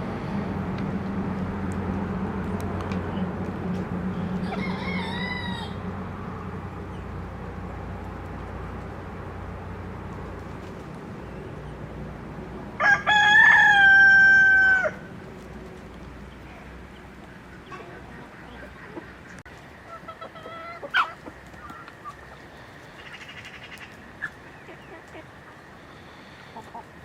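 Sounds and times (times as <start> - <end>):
steady low hum: 0.0 - 27.0
rooster crowing: 4.3 - 6.1, 12.8 - 15.1.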